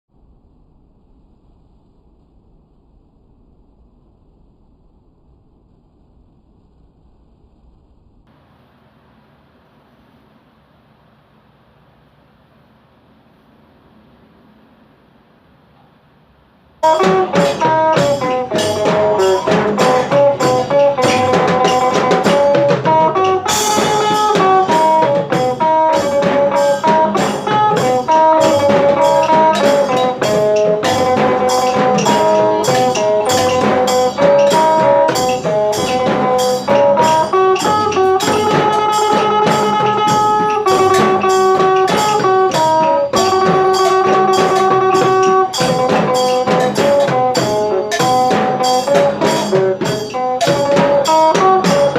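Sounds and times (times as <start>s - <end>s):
cymbals: 16.8s - 51.9s
drum kit beat: 16.8s - 51.9s
plucked lute melody: 16.8s - 51.9s.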